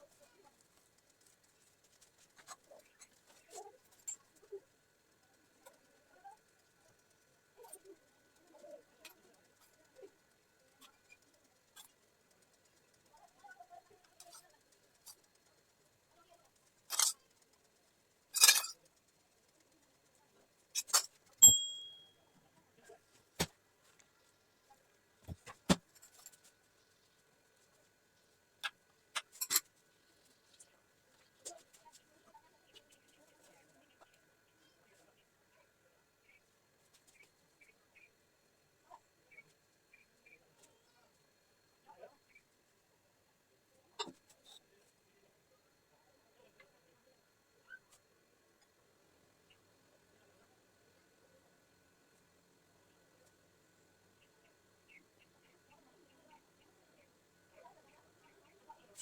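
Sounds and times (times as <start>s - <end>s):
utensil clinking on dish: 20.8s - 22.1s.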